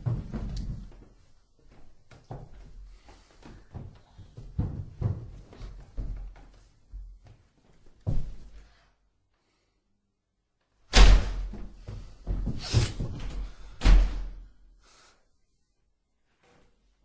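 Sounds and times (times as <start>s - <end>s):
heavy door bangs: 10.9s - 11.8s, 13.2s - 14.4s.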